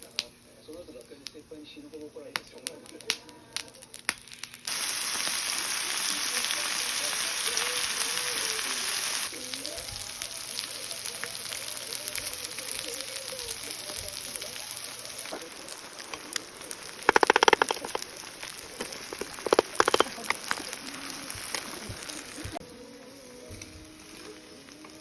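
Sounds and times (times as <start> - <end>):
food sizzling on hot surface: 0.0 - 25.0
rapid clicking: 16.0 - 20.8.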